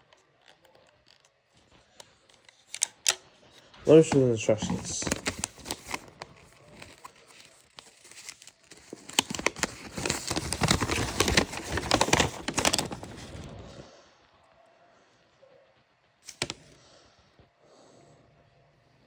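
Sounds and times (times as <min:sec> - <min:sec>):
paper crinkling and rustling: 0:00.1 - 0:13.7, 0:16.3 - 0:16.7.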